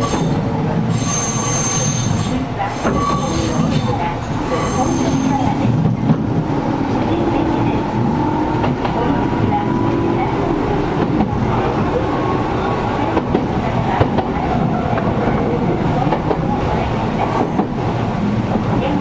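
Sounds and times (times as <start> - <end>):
train cabin rumble: 0.0 - 19.0.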